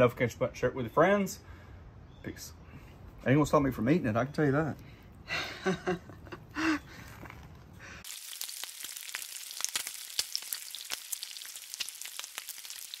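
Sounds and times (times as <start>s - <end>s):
food frying and sizzling: 8.0s - 13.0s.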